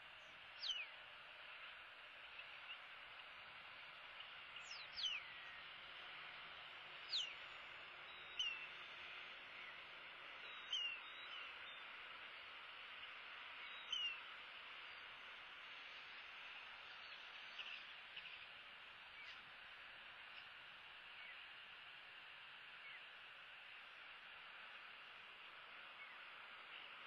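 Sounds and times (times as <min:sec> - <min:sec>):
steady outdoor hiss: 0:00.0 - 0:27.0.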